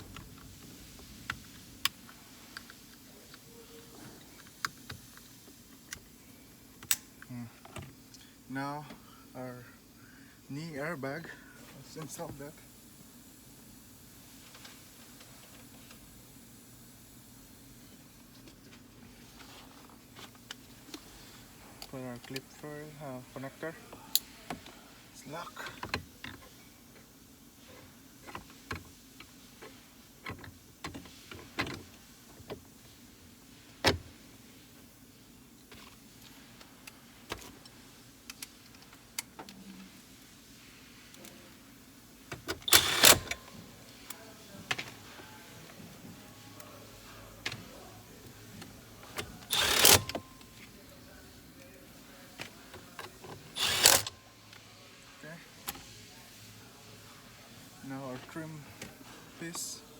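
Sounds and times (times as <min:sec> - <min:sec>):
electric motor whirring: 0:42.7 - 0:43.4, 0:49.5 - 0:50.1, 0:53.6 - 0:54.1.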